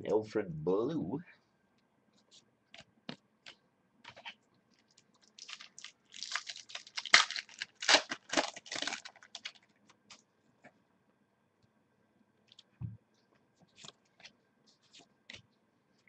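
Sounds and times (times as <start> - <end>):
wrapper crinkling: 4.1 - 10.2.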